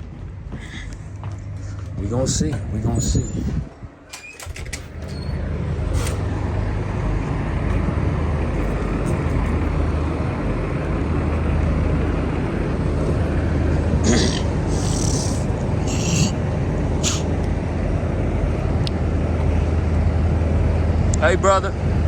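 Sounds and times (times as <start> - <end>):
diesel truck engine droning: 0.0 - 22.0
short hisses: 17.0 - 17.3.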